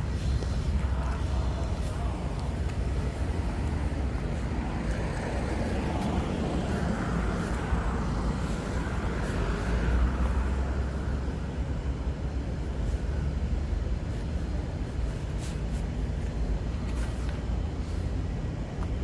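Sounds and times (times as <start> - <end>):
low rumble of traffic: 0.0 - 19.0
vehicle passing by: 0.8 - 12.0.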